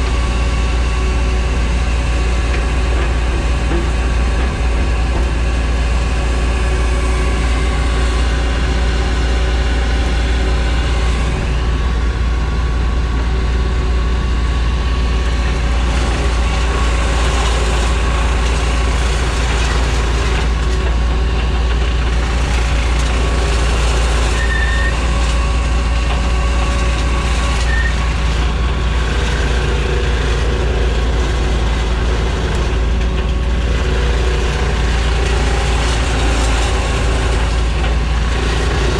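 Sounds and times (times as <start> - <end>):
heavy engine rumbling: 0.0 - 38.9.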